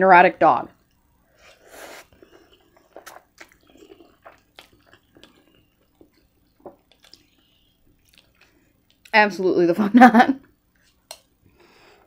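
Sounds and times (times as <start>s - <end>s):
slurping spaghetti: 1.4s - 8.6s
wet chewing: 2.0s - 9.1s.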